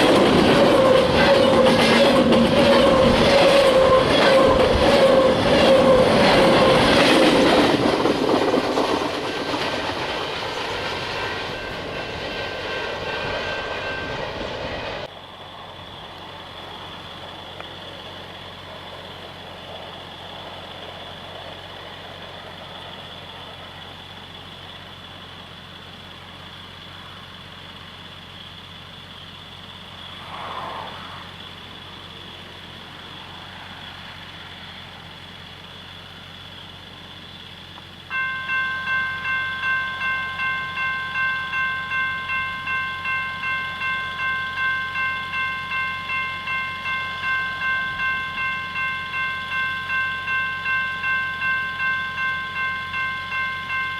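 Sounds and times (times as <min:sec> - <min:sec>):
steady high tone: 0:00.0 - 0:15.1, 0:38.1 - 0:53.9
freight train cars rolling past: 0:00.0 - 0:27.8, 0:29.4 - 0:53.9
squealing train wheels: 0:00.0 - 0:53.9.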